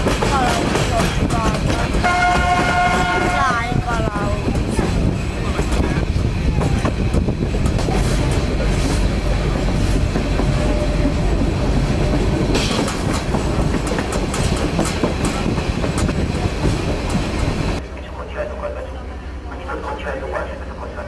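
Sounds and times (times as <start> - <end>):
wheels clicking over rails: 0.0 - 17.8
train carriages rumbling: 0.0 - 21.0.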